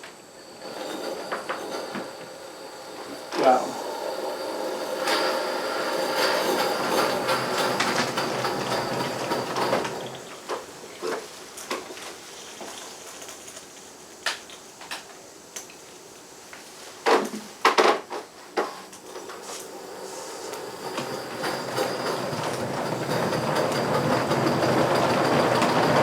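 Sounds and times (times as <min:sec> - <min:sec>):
model steam train running: 0:00.0 - 0:14.4, 0:19.0 - 0:26.0
train cars and couplers clicking: 0:05.0 - 0:15.8, 0:20.5 - 0:26.0.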